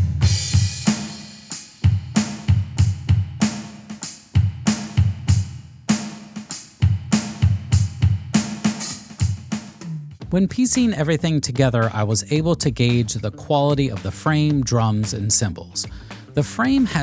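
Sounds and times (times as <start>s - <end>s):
cymbal crash: 0.0s - 9.4s
drum kit playing a beat: 0.0s - 17.0s.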